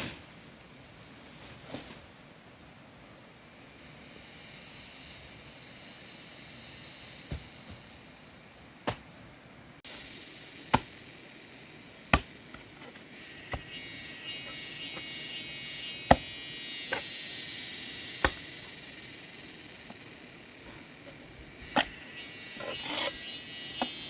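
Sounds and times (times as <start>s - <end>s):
insects buzzing: 0.0s - 24.0s
sharp chopping strikes: 10.7s - 11.0s, 12.1s - 12.4s, 13.5s - 13.8s, 16.0s - 17.1s, 18.2s - 18.7s.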